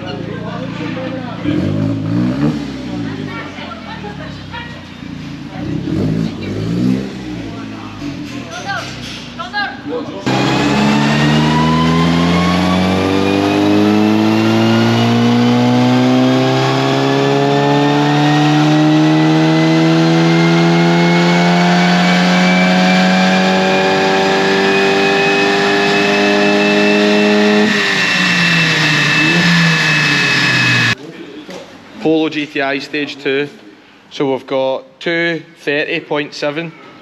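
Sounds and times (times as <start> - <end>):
car engine revving at full throttle: 1.4 - 3.4, 5.5 - 8.3, 10.2 - 31.0
dyno rollers spinning down: 10.2 - 31.0.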